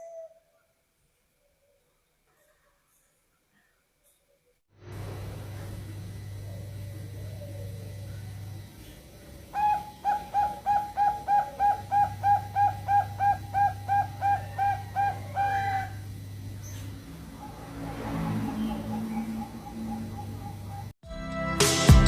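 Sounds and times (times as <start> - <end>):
dove cooing: 0.0 - 0.5, 5.1 - 20.9
steady low hum: 4.8 - 21.0.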